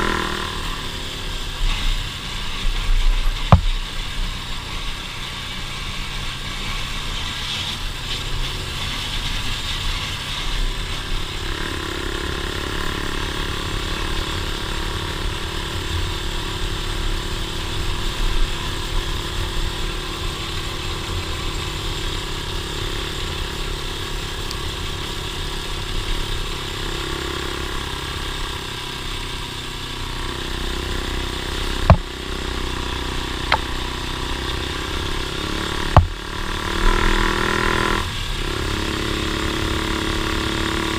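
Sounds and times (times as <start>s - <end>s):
off-road vehicle engine running: 0.0s - 40.9s
sharp knock: 3.5s - 3.8s, 31.9s - 32.1s, 36.0s - 36.2s.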